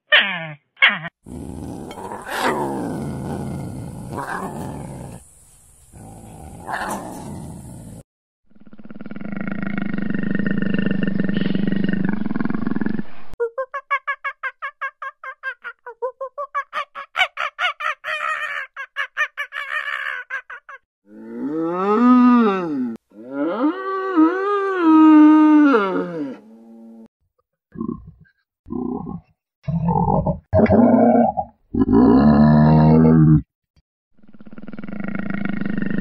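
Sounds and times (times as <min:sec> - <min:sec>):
big cat roaring and growling: 0:01.2 - 0:05.2, 0:06.0 - 0:08.0, 0:08.6 - 0:13.2, 0:21.1 - 0:27.0, 0:28.7 - 0:33.5, 0:34.3 - 0:36.0.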